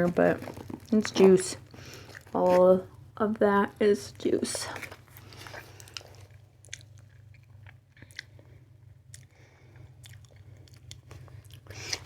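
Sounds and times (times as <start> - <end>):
steady low hum: 0.0 - 12.0
faint chewing: 0.4 - 2.7, 4.7 - 12.0
mouth clicks and crunches: 4.8 - 8.5, 9.1 - 12.0.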